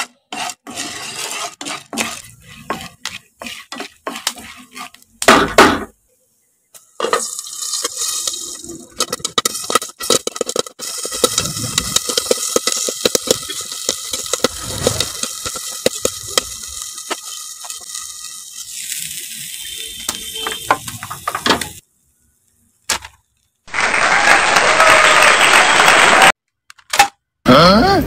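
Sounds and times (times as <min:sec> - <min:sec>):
popcorn popping in a pan: 0:07.0 - 0:18.8.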